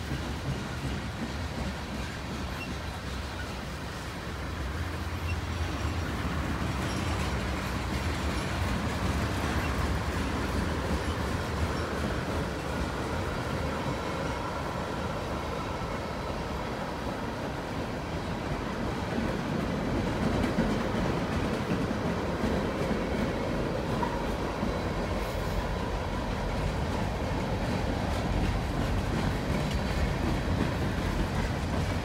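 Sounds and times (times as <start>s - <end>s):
freight train wheels rumbling: 0.0s - 32.0s.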